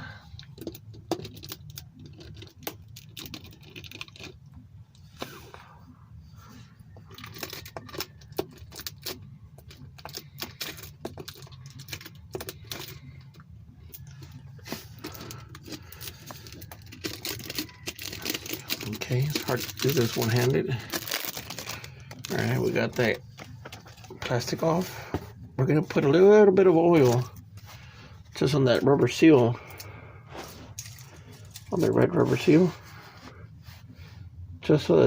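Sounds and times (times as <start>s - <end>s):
low steady hum: 0.0s - 35.0s
plastic wrap crinkling: 14.0s - 25.0s.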